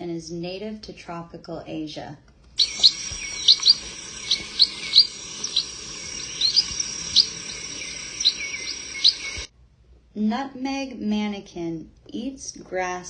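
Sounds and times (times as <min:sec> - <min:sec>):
birds calling high notes: 0:02.6 - 0:09.5.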